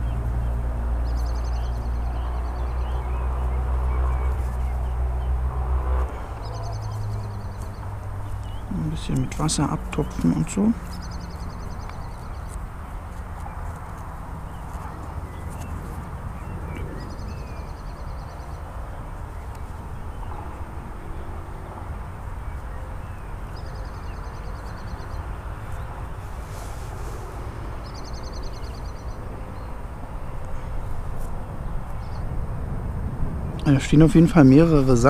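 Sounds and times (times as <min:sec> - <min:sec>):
low outdoor rumble: 0:00.0 - 0:35.0
bird ticking trill: 0:06.2 - 0:13.7.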